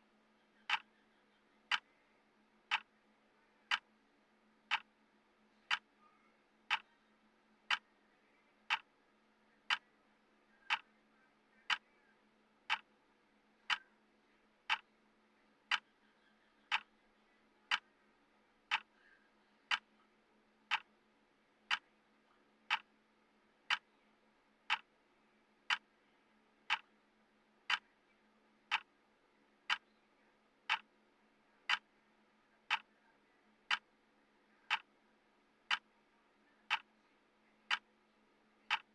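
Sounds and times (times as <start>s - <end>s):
faint low hum: 0.0s - 38.9s
timer ticking: 0.7s - 0.9s, 2.7s - 2.9s, 3.7s - 3.9s, 4.7s - 4.9s, 8.7s - 8.9s, 10.7s - 10.9s, 12.7s - 12.9s, 14.7s - 14.9s, 18.7s - 18.9s, 19.7s - 19.9s, 20.7s - 20.9s, 22.7s - 22.9s, 24.7s - 24.9s, 25.7s - 25.9s, 26.7s - 26.9s, 27.7s - 27.9s, 28.7s - 28.9s, 30.7s - 30.9s, 31.7s - 31.9s, 32.7s - 32.9s, 33.7s - 33.9s, 34.7s - 34.9s, 35.7s - 35.9s, 36.7s - 36.9s, 37.7s - 37.9s, 38.7s - 38.9s.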